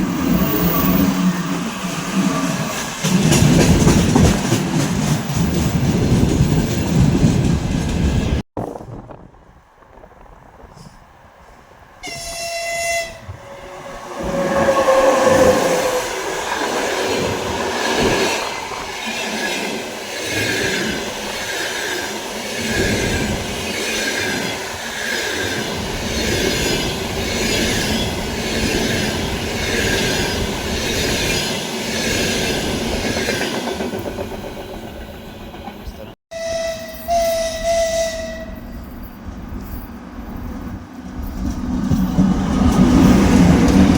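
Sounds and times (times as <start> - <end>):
train wheels clattering over rail joints: 2.5 - 8.2
train horn blast: 12.0 - 16.2, 36.3 - 38.8.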